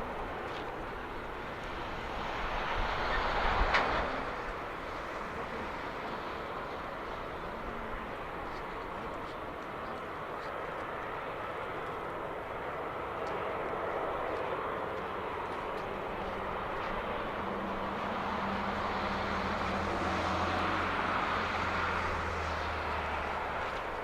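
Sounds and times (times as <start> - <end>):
jet engines rushing: 0.0 - 24.0.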